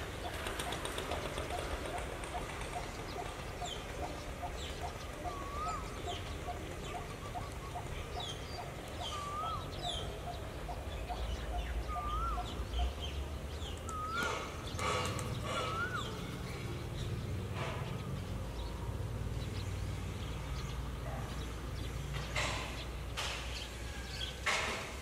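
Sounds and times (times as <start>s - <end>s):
bird wavy whistled call: 0.2s - 13.1s, 13.7s - 16.6s.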